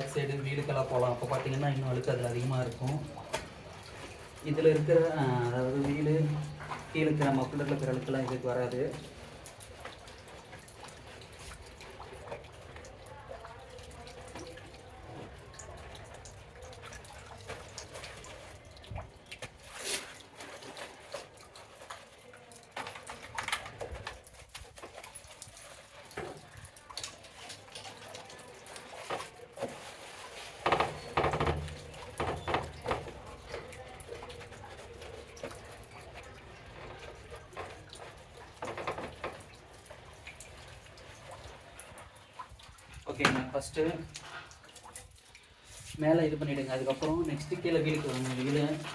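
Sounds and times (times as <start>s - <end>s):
water dripping and splashing: 0.0s - 48.9s
wet cloth rubbing: 24.2s - 48.9s
small knocks: 30.6s - 33.3s.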